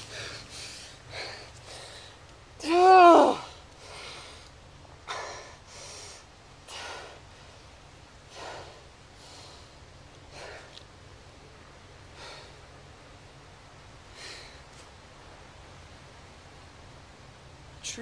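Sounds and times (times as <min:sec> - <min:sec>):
man breathing heavily: 0:00.0 - 0:02.6, 0:03.2 - 0:11.2, 0:12.0 - 0:13.2, 0:14.0 - 0:15.0.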